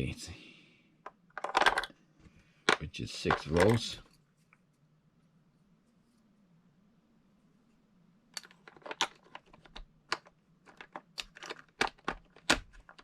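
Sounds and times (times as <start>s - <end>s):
batteries clicking into compartment: 8.4s - 13.0s.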